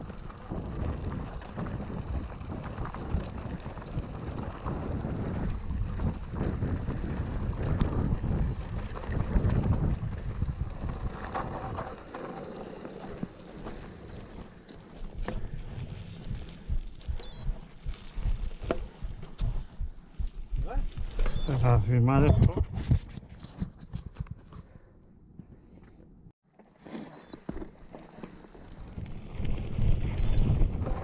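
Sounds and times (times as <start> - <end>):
wind buffeting microphone: 0.0 - 12.2, 13.0 - 23.2, 28.5 - 31.0.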